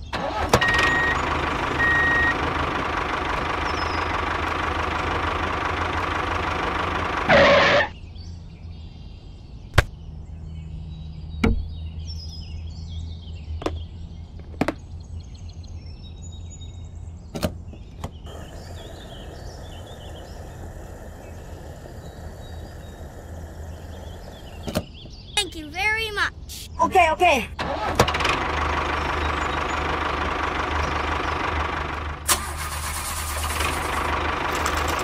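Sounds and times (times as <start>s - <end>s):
engine-like running sound: 0.0s - 8.0s, 18.1s - 24.8s, 27.3s - 35.0s
faint bird chirps: 18.2s - 25.8s.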